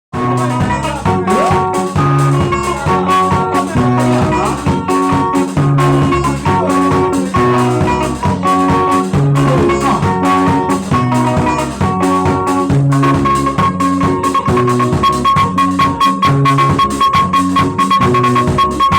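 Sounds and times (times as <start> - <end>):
live band music: 0.2 - 18.9.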